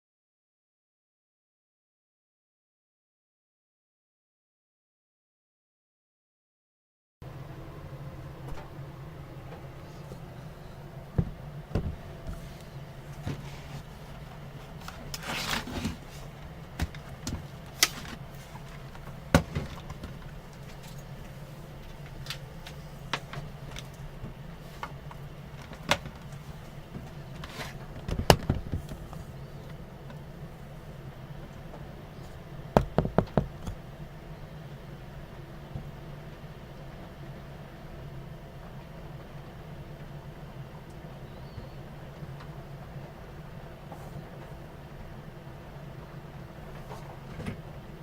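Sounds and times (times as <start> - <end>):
steady low hum: 7.2 - 48.0
sharp clicks and knocks: 32.8 - 33.8.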